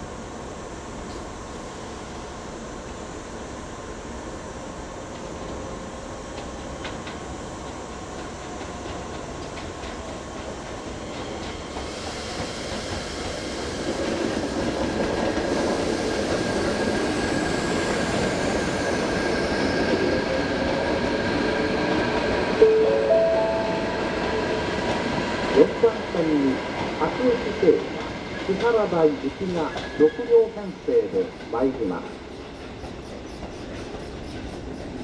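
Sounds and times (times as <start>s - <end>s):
train wheels rumbling on track: 0.1s - 35.0s
faint high whine: 22.6s - 24.5s.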